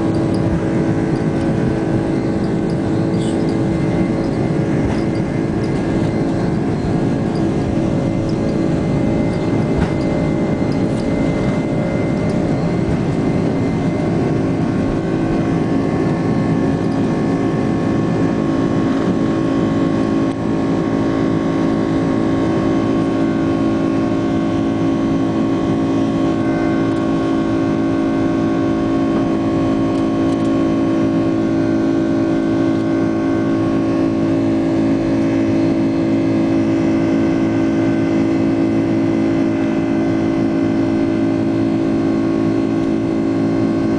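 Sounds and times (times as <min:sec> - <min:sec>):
jet engines at high power: 0:00.0 - 0:43.9.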